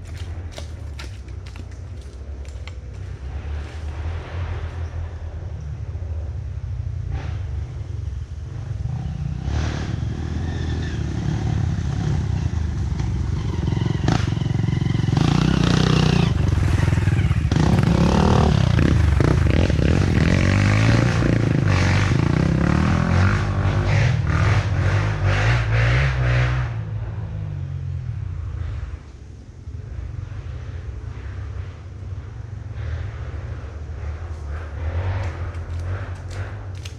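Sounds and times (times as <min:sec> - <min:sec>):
motorcycle engine revving: 0:08.5 - 0:27.0.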